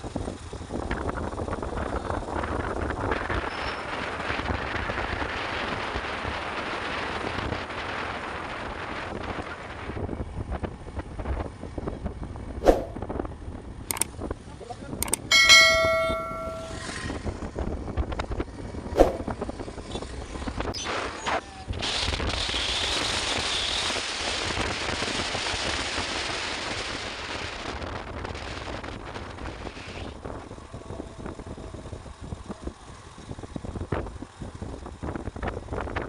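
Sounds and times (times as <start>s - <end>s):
motorcycle engine and road rumble: 0.0s - 36.0s
sharp clicks: 13.9s - 14.1s, 15.0s - 15.4s.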